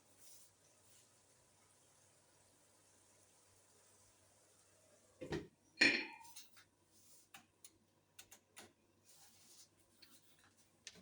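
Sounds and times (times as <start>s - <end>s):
cookware clanking: 5.8s - 6.4s.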